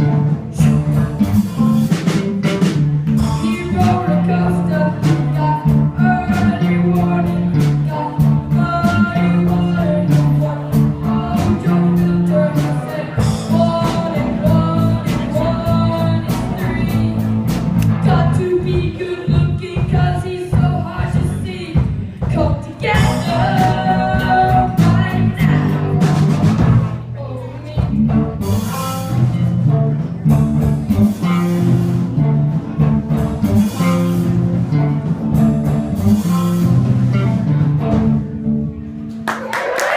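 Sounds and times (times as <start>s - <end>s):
bass guitar: 0.0s - 39.9s
guitar: 0.0s - 39.9s
person singing: 3.1s - 26.4s.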